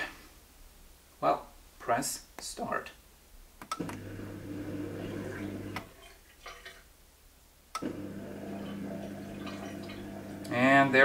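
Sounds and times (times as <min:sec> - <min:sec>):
dishwasher humming: 0:03.8 - 0:06.7, 0:07.8 - 0:10.7.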